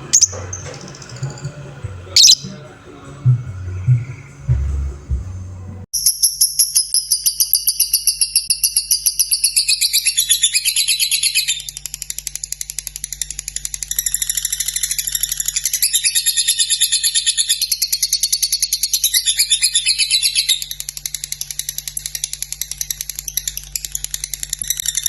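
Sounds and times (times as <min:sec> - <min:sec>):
lovebird chirping rapidly: 0:00.0 - 0:01.5, 0:02.2 - 0:02.6, 0:06.0 - 0:11.8, 0:13.9 - 0:20.8.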